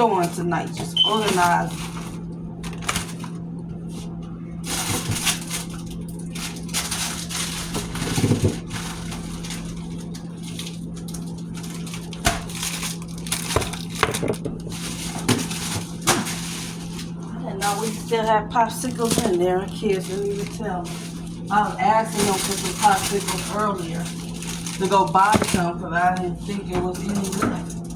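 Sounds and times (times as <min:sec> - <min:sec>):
plastic bags rustling: 0:00.0 - 0:27.9
steady low hum: 0:00.0 - 0:27.9
items knocking and clicking: 0:07.8 - 0:08.8, 0:12.0 - 0:16.5, 0:24.5 - 0:27.9.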